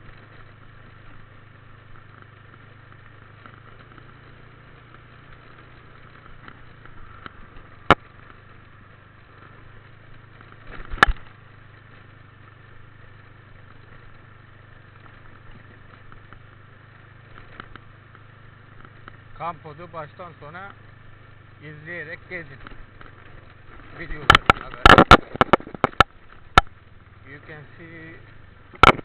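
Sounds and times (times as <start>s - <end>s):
motorbike engine humming: 0.0s - 29.0s
sharp clicks or knocks: 10.7s - 11.3s, 24.2s - 26.7s, 28.7s - 29.0s.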